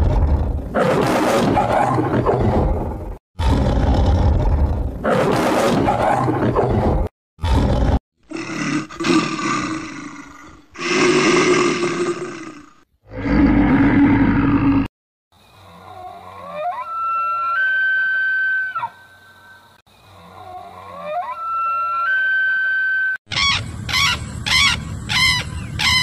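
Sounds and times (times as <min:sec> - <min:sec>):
large animal roaring and growling: 0:00.0 - 0:14.9.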